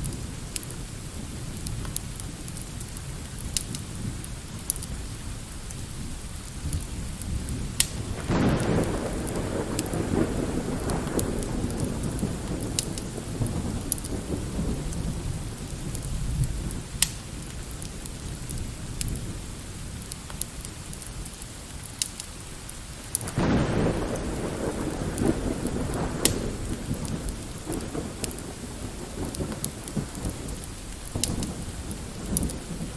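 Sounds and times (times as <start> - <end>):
light rain falling: 0.0 - 32.9
wood fire crackling: 0.0 - 32.9
rolling thunder: 6.6 - 17.8, 23.2 - 32.9.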